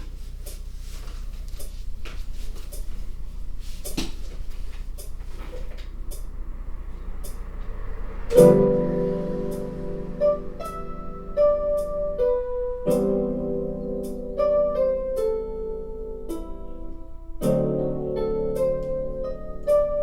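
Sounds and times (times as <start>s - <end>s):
low steady hum: 0.0s - 20.0s
keyboard chord ringing: 8.3s - 20.0s.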